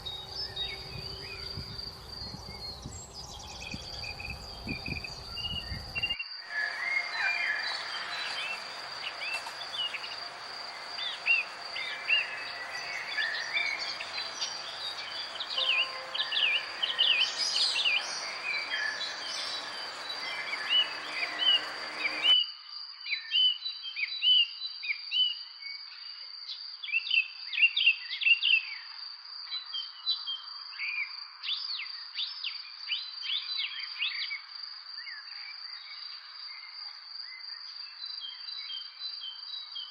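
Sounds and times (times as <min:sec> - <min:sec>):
high-pitched insect trill: 0:00.0 - 0:22.3
small birds chirping: 0:00.0 - 0:22.3.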